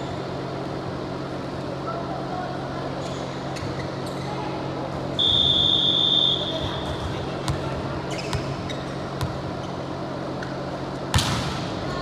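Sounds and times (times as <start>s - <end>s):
referee's whistle: 5.2s - 6.6s.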